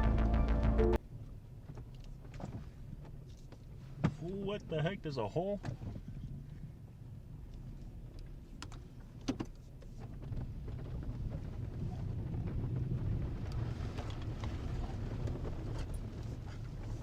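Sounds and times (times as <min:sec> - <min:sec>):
vehicle engine running: 0:00.0 - 0:01.0.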